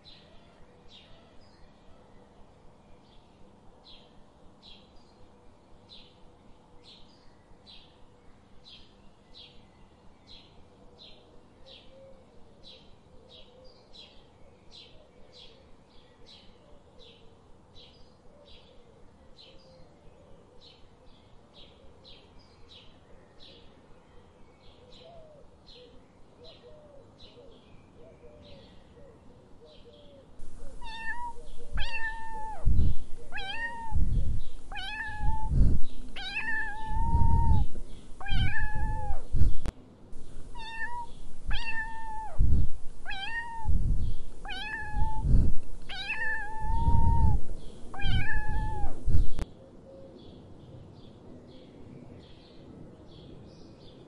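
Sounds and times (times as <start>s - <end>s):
cat meowing loudly: 30.7s - 35.6s, 36.2s - 39.3s, 40.4s - 43.8s, 44.4s - 49.3s.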